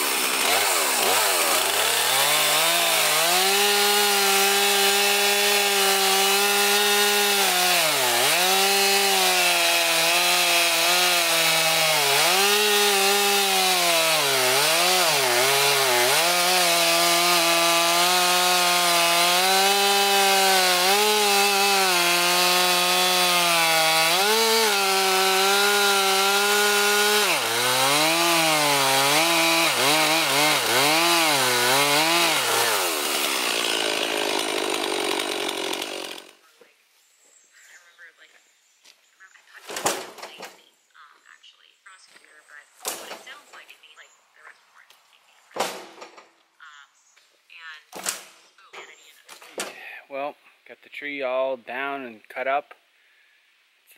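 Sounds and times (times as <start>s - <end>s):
chainsaw cutting through log: 0.0s - 36.4s.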